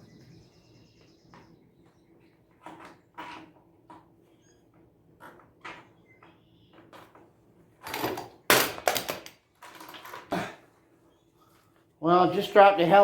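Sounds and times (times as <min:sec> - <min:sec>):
hand tool crashing on floor: 0:07.9 - 0:10.5.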